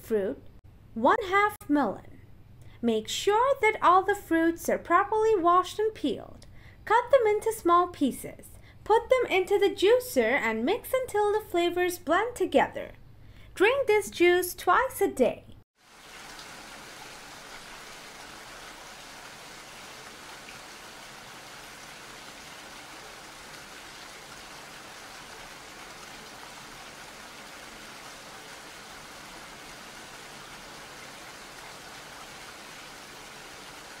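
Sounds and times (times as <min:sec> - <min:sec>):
steady rain falling: 0:15.8 - 0:34.0.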